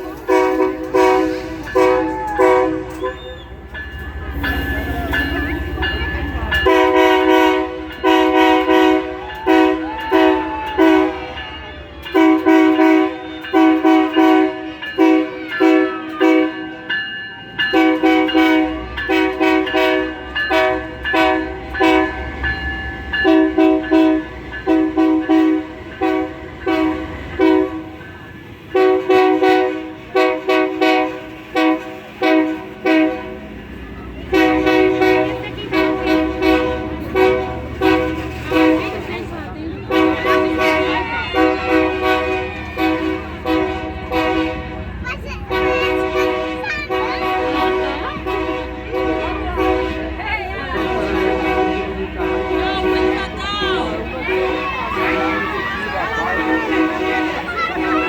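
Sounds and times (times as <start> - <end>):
locomotive air horn blasts: 0.0 - 3.6, 6.6 - 11.4, 12.1 - 16.9, 17.7 - 22.4, 23.2 - 28.0, 28.7 - 33.6, 34.3 - 58.0
train rumble: 0.0 - 58.0.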